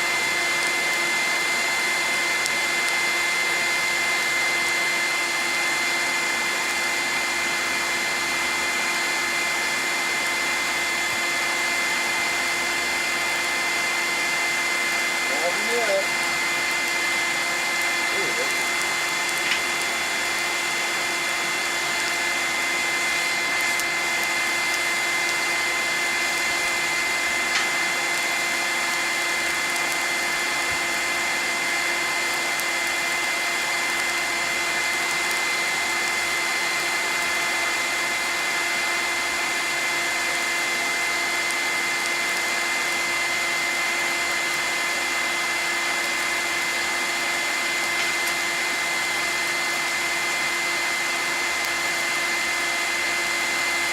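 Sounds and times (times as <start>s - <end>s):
electric air blower whining: 0.0s - 53.9s.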